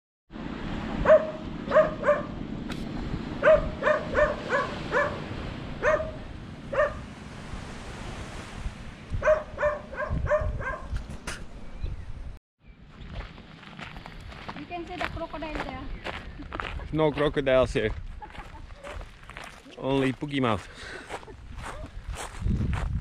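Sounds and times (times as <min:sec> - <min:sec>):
dog barking: 0:01.0 - 0:02.4, 0:03.4 - 0:07.1, 0:09.2 - 0:11.0.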